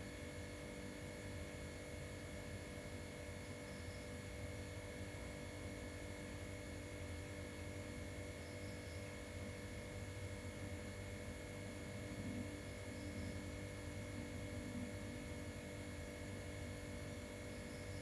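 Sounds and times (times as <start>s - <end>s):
electrical hum: 8.4s - 18.0s.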